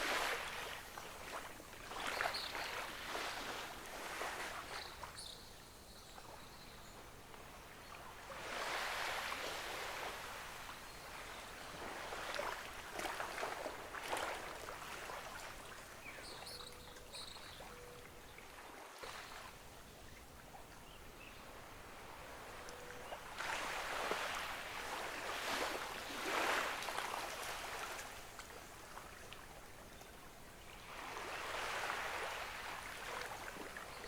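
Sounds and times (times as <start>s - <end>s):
ocean waves washing onto beach: 0.0s - 5.0s, 7.2s - 16.5s, 21.4s - 29.6s, 30.8s - 34.0s.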